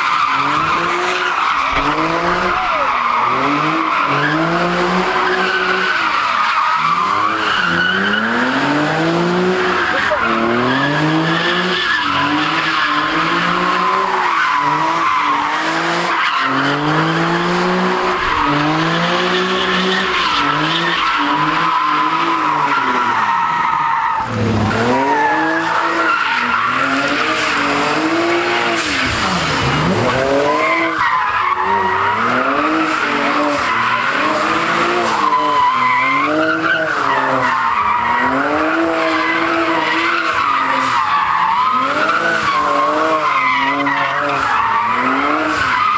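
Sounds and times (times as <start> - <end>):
car engine revving: 0.0 - 45.9
tyre screech: 0.0 - 45.9.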